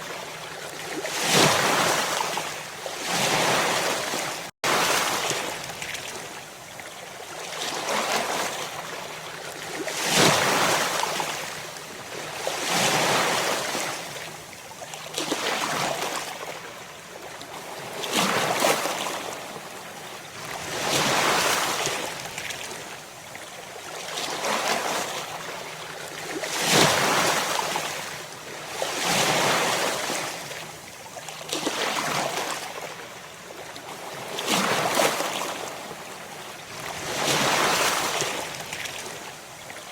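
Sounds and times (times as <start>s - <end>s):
ocean waves breaking: 36.8s - 39.2s.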